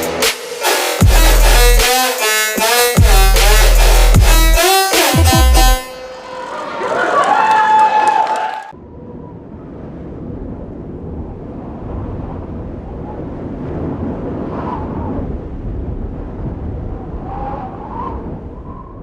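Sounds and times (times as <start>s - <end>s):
crowd cheering and applauding: 5.5s - 8.8s.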